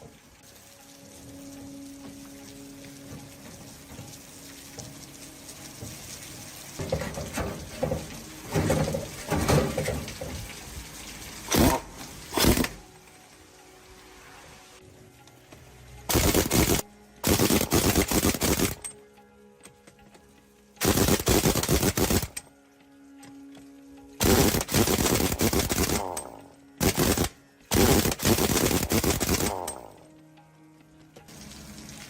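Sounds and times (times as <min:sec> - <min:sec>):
power tool rattling: 0:16.1 - 0:18.9, 0:20.8 - 0:22.4, 0:24.2 - 0:29.9.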